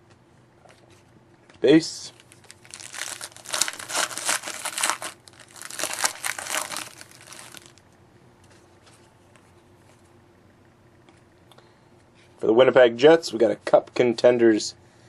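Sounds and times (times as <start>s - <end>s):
foil wrapper crinkling: 2.1s - 7.8s.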